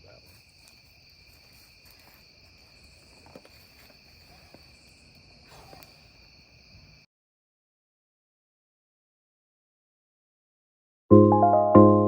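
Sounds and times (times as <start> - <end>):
crickets trilling: 0.0 - 7.1.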